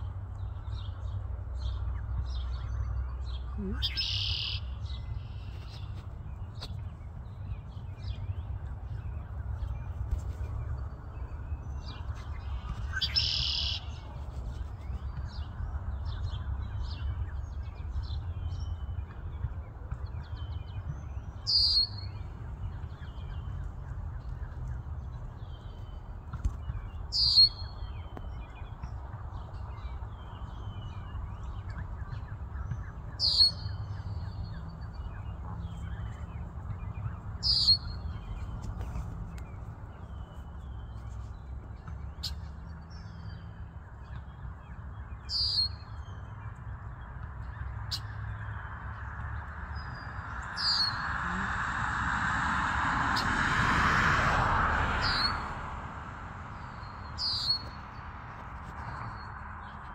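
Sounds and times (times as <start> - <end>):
faint bird twittering: 3.4 - 6.6, 11.9 - 15.0
longer bird call: 3.5 - 5.7.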